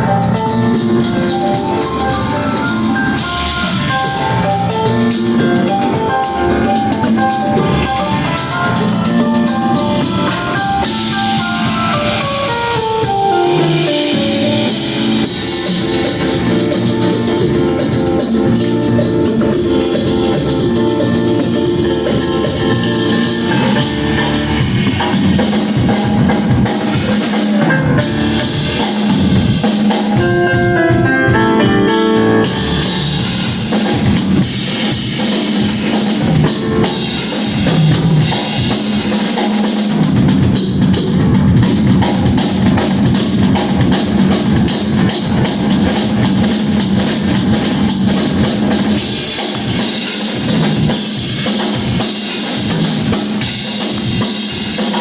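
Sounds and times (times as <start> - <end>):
stepped melodic line: 0.0 - 28.8
bass drum and snare: 0.0 - 31.0, 32.4 - 55.0
rock band playing live: 0.0 - 55.0.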